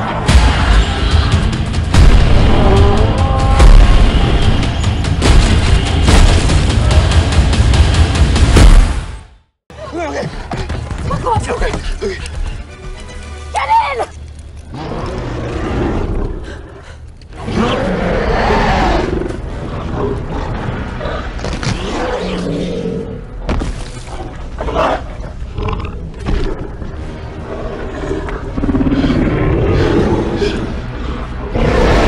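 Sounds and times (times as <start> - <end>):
dinosaur roars and growls: 14.7 - 23.3, 24.1 - 32.0.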